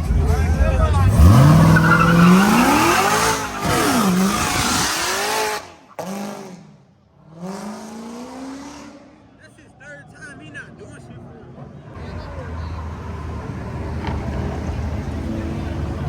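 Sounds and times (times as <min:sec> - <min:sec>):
car engine revving hard: 0:01.0 - 0:09.1
tyres squealing: 0:01.1 - 0:05.6.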